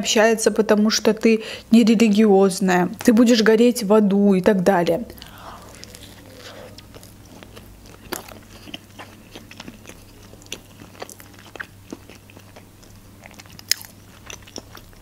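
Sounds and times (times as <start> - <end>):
faint low hum: 0.0 - 15.0
person chewing: 5.2 - 15.0.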